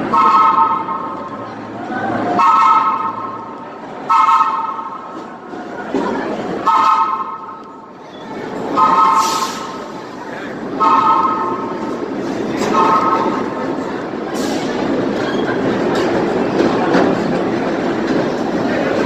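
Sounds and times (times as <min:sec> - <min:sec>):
train rumble: 0:00.0 - 0:19.0
train horn blasts: 0:00.1 - 0:01.2, 0:02.4 - 0:03.5, 0:04.1 - 0:05.0.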